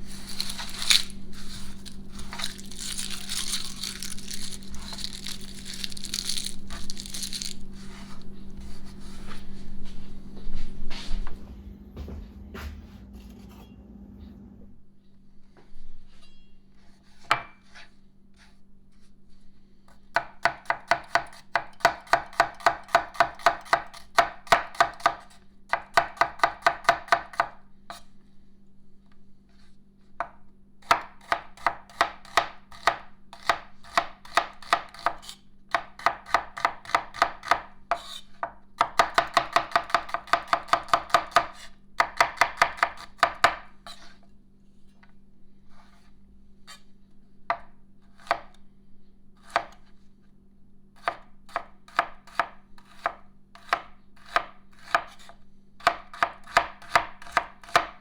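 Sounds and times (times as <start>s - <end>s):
knife chopping on cutting board: 0.1s - 9.4s, 17.1s - 17.9s, 20.2s - 28.0s, 30.2s - 44.2s, 47.5s - 48.6s, 49.4s - 49.9s, 51.0s - 57.9s.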